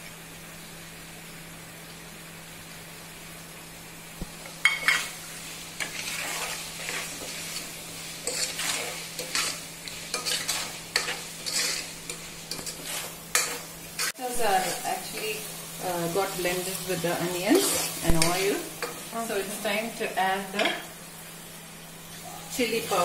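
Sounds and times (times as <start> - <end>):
food sizzling in oil: 0.0 - 23.0
utensil stirring and scraping pan: 4.4 - 19.6.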